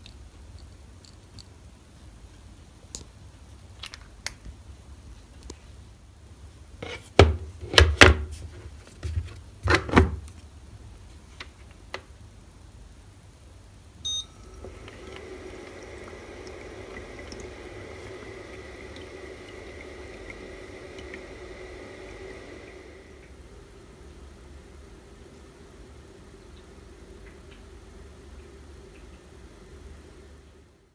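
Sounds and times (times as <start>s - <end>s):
short beep: 14.0s - 14.6s
microwave humming: 14.0s - 30.8s.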